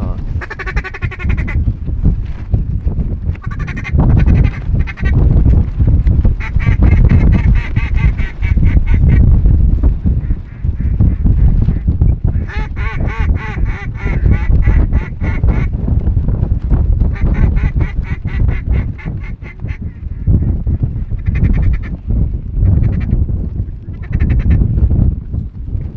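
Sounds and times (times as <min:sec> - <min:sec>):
ducks quacking rapidly: 0:00.0 - 0:01.6, 0:03.4 - 0:05.2, 0:06.4 - 0:09.2, 0:10.2 - 0:15.7, 0:17.1 - 0:20.5, 0:21.2 - 0:22.0, 0:23.9 - 0:24.6
wind rumble on microphone: 0:00.0 - 0:25.9.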